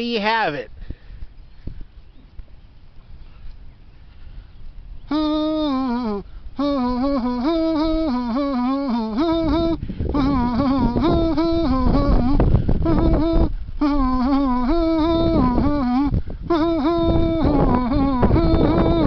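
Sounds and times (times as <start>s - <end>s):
man humming a tune: 5.0s - 19.0s.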